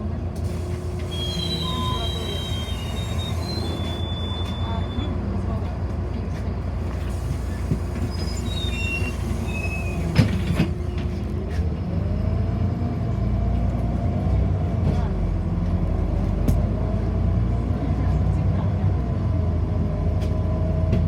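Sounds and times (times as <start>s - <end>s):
bus engine rumble: 0.0s - 21.0s
bus drive whine rising: 0.3s - 13.3s.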